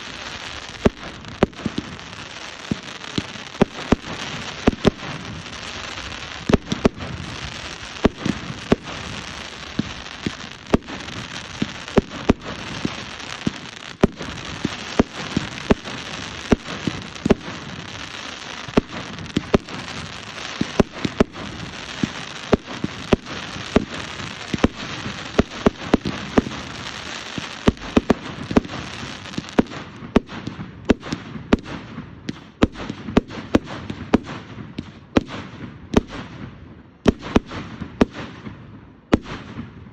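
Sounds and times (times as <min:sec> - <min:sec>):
continuous hiss: 0:00.0 - 0:30.8
fireworks bangs and pops: 0:00.0 - 0:39.9.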